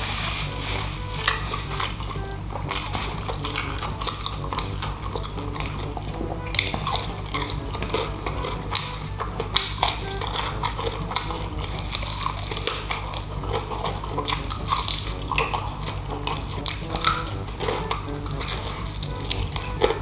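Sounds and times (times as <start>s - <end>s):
chewing mouth clicks and smacks: 2.7s - 20.0s.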